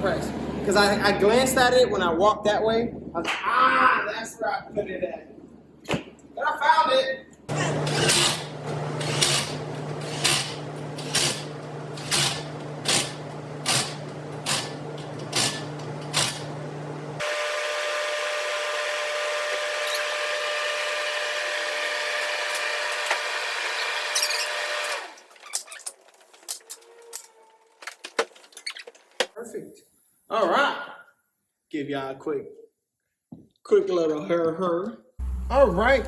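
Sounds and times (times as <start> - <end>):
impact wrench running: 7.5 - 16.5, 35.2 - 36.0.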